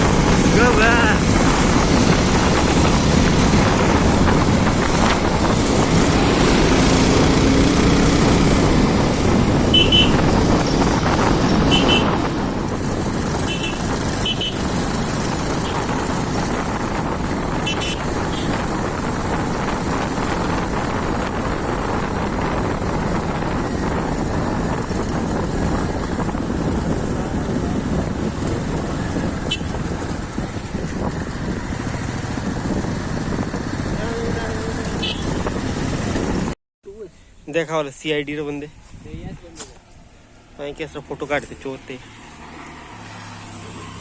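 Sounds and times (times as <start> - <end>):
motorcycle engine: 0.0 - 36.6
wind noise: 0.0 - 36.6
horn beeps: 9.7 - 10.3, 11.4 - 12.3, 13.4 - 14.6.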